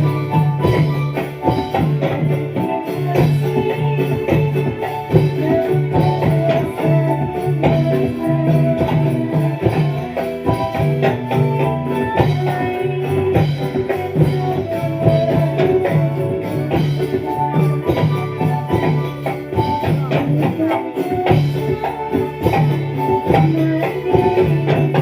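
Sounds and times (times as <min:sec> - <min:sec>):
drum and bass beat: 0:00.0 - 0:25.0
looping melody line: 0:00.0 - 0:25.0.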